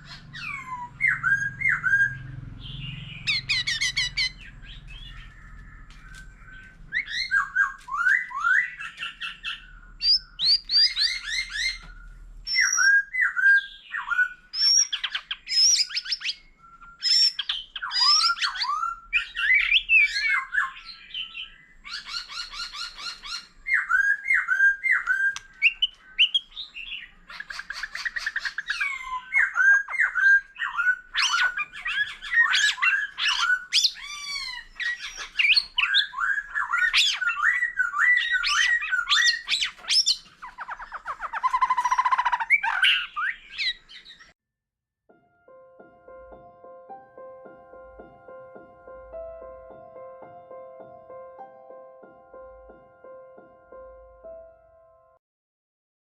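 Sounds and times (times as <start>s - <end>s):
bird singing varied song: 0.0s - 44.4s.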